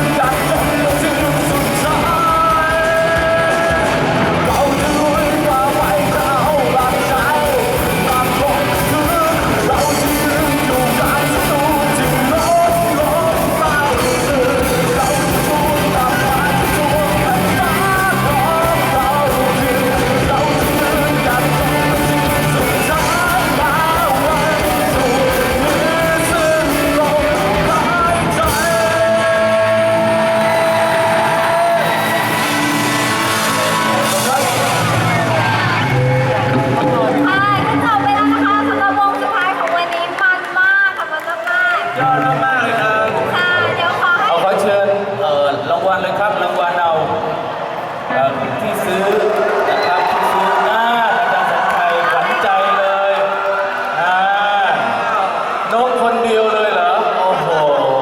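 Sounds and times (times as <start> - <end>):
person singing: 0.0 - 39.8
live rock band playing: 0.0 - 40.9.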